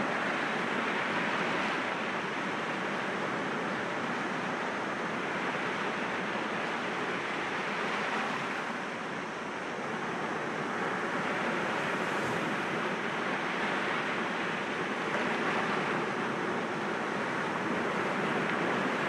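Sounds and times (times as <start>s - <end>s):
sea waves breaking against rocks: 11.2s - 13.0s.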